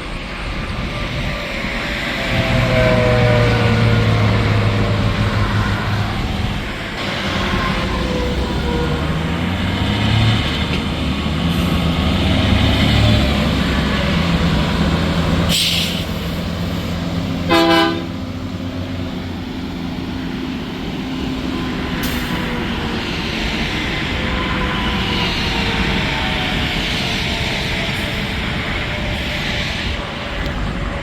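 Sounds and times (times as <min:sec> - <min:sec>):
diesel truck engines: 0:00.0 - 0:31.0
truck horn toot: 0:17.4 - 0:18.4.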